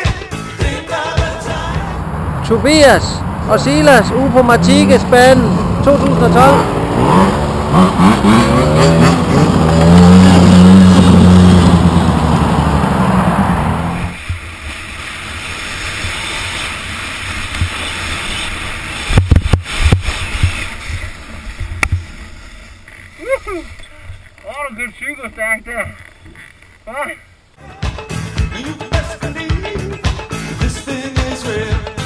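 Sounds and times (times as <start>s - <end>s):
rushing background: 1.0s - 21.5s
dirt bike engine revving: 1.5s - 21.4s.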